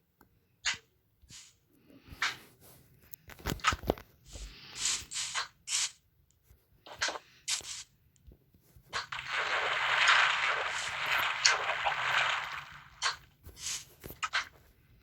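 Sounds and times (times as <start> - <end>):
scraping or rubbing sounds: 8.9 - 14.6.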